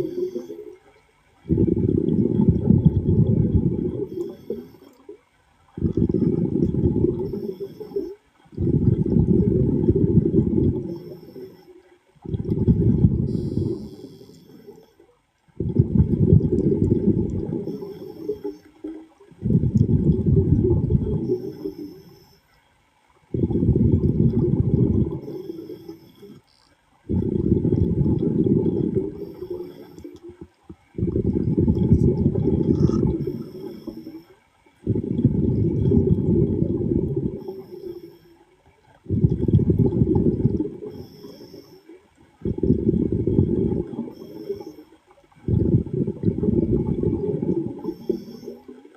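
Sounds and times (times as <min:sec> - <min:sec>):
diver exhaling bubbles underwater: 0:01.5 - 0:04.6, 0:05.8 - 0:11.1, 0:12.2 - 0:14.8, 0:15.6 - 0:18.4, 0:19.4 - 0:22.0, 0:23.3 - 0:26.4, 0:27.1 - 0:30.4, 0:31.0 - 0:34.0, 0:34.8 - 0:38.0, 0:39.1 - 0:41.4, 0:42.4 - 0:44.6, 0:45.4 - 0:48.8.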